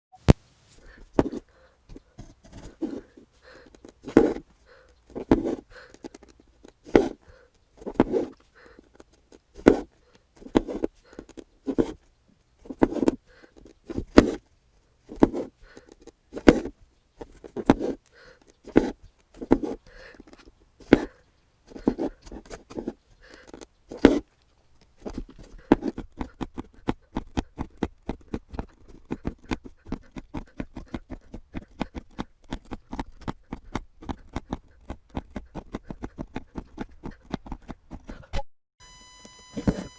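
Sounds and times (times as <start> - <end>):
thread swishing through fabric: 0.2 - 0.9.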